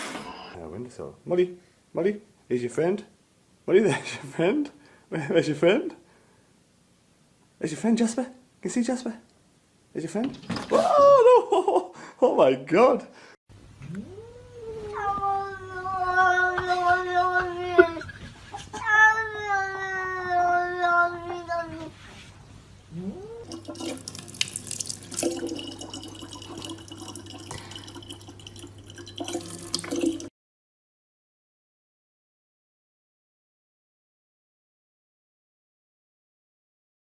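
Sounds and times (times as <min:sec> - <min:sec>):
cat yowling: 0:22.9 - 0:23.6.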